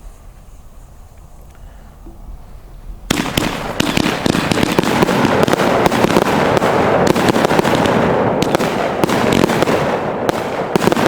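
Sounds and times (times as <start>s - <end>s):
firework cake crackling pops: 3.1s - 11.0s.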